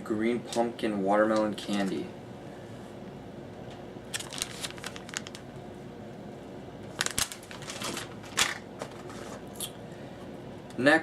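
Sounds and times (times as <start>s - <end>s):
plastic packaging crinkling: 4.1s - 5.5s, 6.8s - 9.6s.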